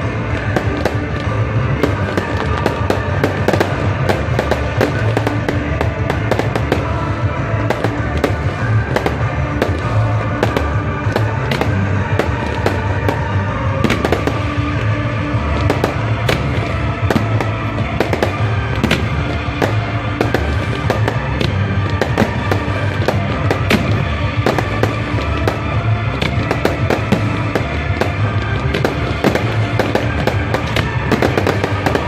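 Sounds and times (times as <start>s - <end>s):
fireworks bangs: 0.0s - 32.0s
music with low bass: 0.0s - 32.0s.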